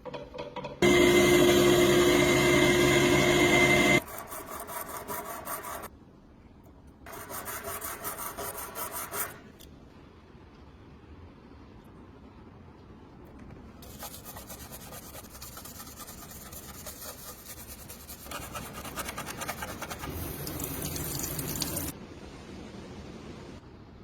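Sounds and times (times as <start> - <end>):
power tool whining: 0.8 - 4.0
hand sanding strokes: 4.0 - 5.9, 7.1 - 9.4, 13.8 - 20.3.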